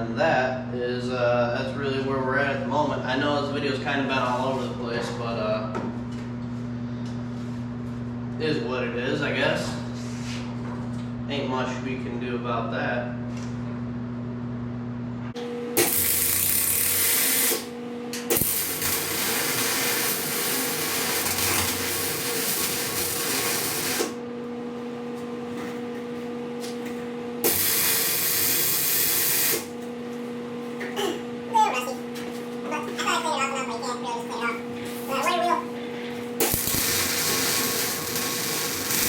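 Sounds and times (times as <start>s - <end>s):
welding arc crackling hiss: 15.8s - 17.7s, 18.3s - 24.2s, 27.4s - 29.7s, 36.4s - 39.0s
welder hum: 15.8s - 24.2s, 27.4s - 29.8s, 36.3s - 39.0s.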